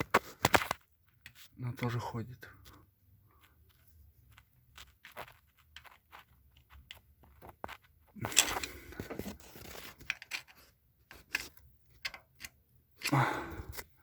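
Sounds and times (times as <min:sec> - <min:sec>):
rubbing and scraping metal: 0:02.6 - 0:12.5
small clicks and knocks on metal: 0:10.0 - 0:13.2.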